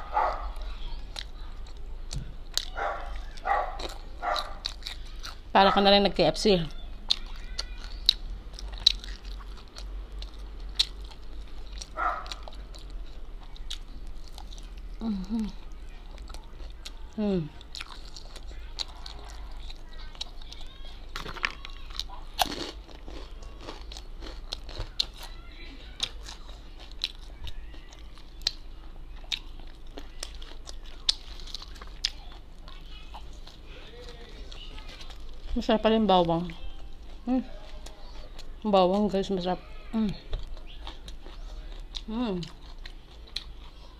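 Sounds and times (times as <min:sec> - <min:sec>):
chewing fried chicken: 0:00.0 - 0:43.9
crisp clicks and crunches: 0:29.3 - 0:35.7.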